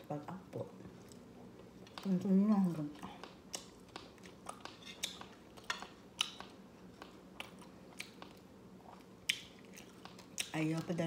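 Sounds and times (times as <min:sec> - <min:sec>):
person chewing: 0:03.2 - 0:10.6.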